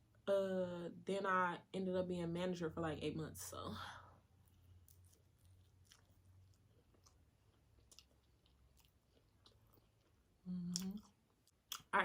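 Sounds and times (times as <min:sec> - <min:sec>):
chewing food: 0:04.4 - 0:11.9.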